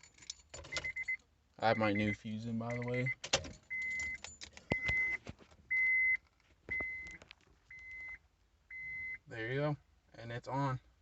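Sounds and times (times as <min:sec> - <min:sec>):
dashboard warning chime beeping: 0:00.7 - 0:09.4.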